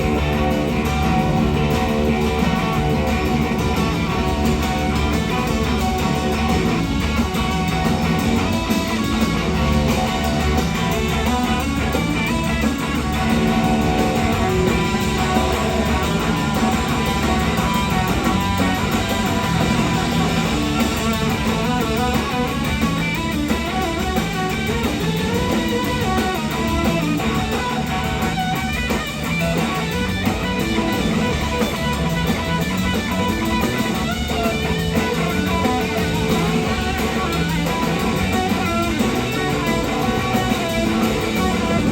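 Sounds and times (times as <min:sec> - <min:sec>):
blues-rock band playing: 0:00.0 - 0:41.9.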